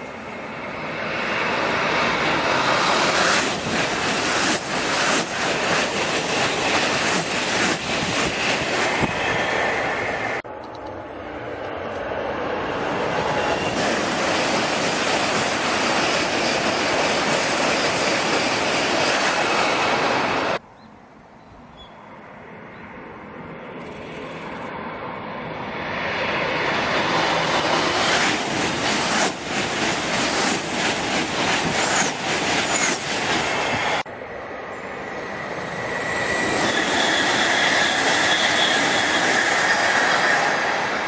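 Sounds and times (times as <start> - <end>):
train rushing past: 0.0 - 20.6, 22.4 - 41.0
high wheel squeals: 35.4 - 41.0.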